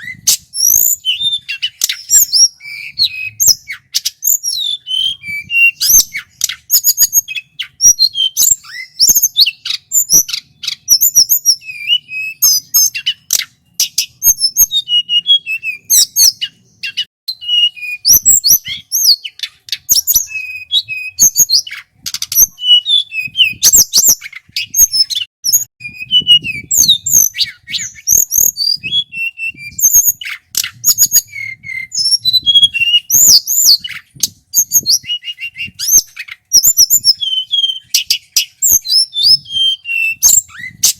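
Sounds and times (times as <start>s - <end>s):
bird singing whistled trills: 0.0s - 40.9s.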